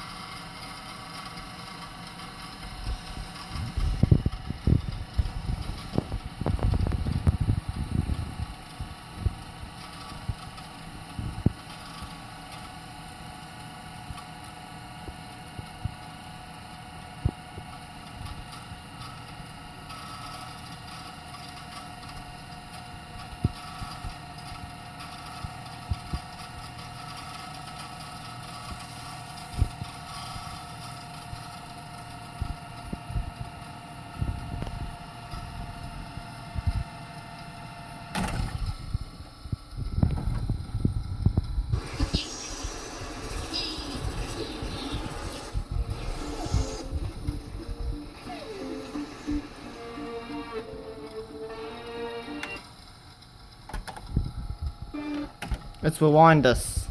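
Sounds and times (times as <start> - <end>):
tape machine motor whirring: 41.7 - 52.9.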